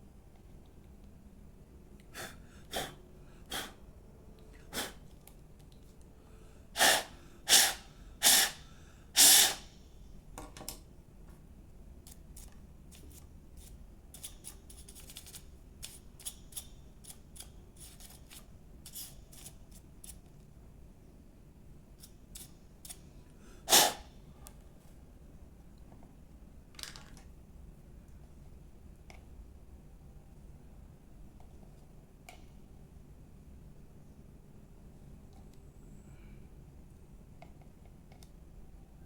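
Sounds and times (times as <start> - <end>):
loud puffs of blown air: 2.1 - 3.8, 6.7 - 9.8, 23.4 - 24.1.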